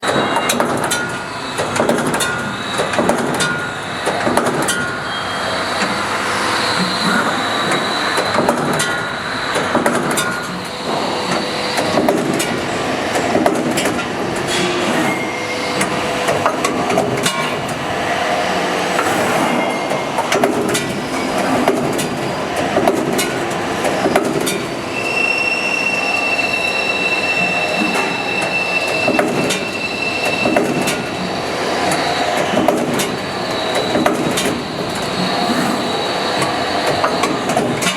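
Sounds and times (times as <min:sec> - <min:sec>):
machine clattering and clicking: 0:07.7 - 0:15.2, 0:19.9 - 0:24.7, 0:28.9 - 0:35.4, 0:36.4 - 0:37.9
high squealing tones: 0:24.7 - 0:37.4.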